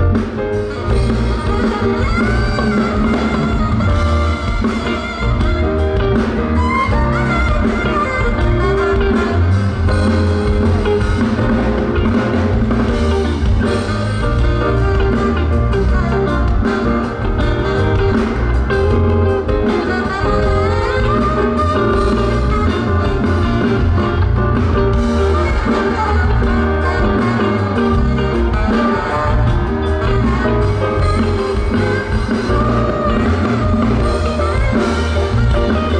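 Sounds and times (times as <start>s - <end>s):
electric guitar: 0.0s - 35.9s
live band playing: 0.0s - 35.9s.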